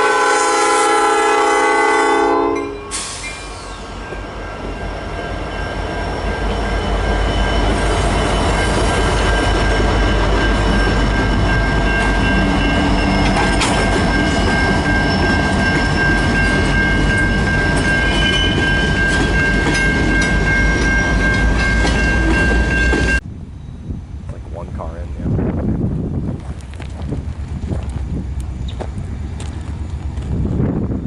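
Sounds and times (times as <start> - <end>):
train wheels clicking on rail joints: 7.1 - 23.2, 26.4 - 31.0.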